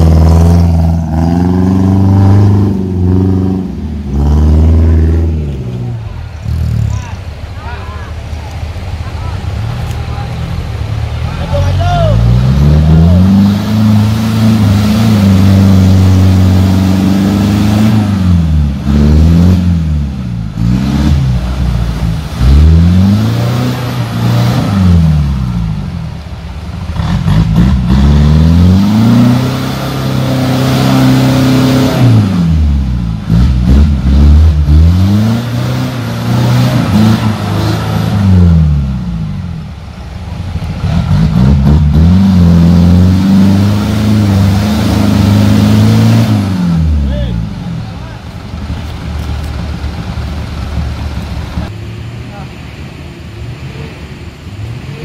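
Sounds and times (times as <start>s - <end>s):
off-road engine revving hard: 0.0s - 7.3s, 9.4s - 26.2s, 26.8s - 39.8s, 40.6s - 51.7s.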